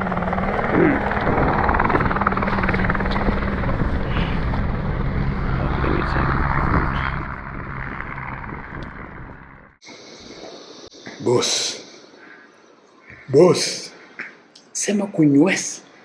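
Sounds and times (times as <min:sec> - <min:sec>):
helicopter drone: 0:00.0 - 0:13.9.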